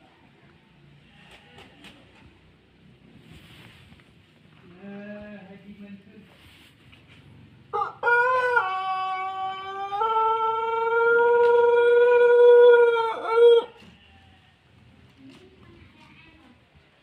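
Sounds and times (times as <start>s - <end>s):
rooster crowing: 7.7s - 13.8s.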